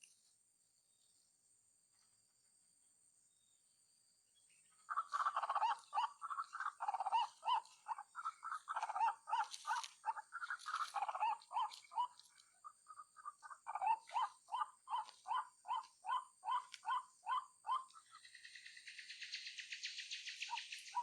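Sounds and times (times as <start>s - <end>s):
waterhen calling: 4.9s - 18.2s.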